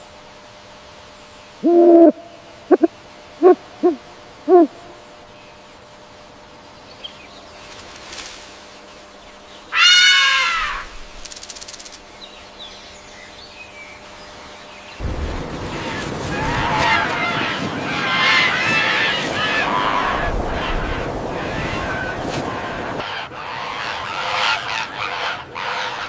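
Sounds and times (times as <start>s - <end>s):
harsh bird call: 9.6s - 11.0s.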